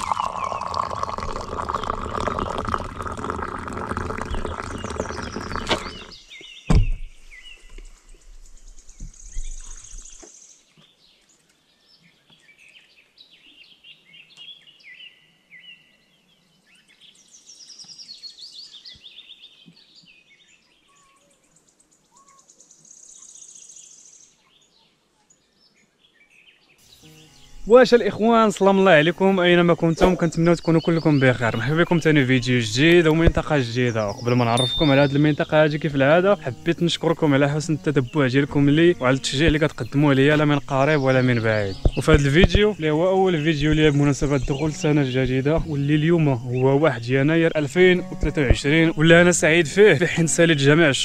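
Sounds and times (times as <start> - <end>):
small birds chirping: 0.0 - 51.0
sharp thump: 6.7 - 7.2.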